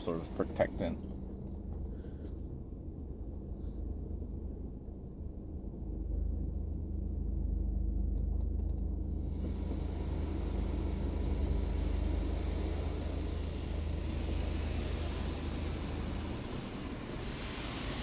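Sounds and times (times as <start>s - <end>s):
steady low rumble: 0.0s - 18.0s
water spray hitting car: 9.5s - 18.0s.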